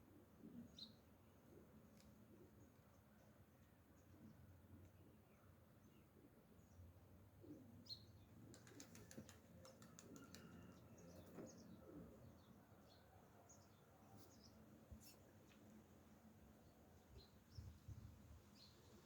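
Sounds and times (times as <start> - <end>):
faint bird chirps: 7.4 - 15.7.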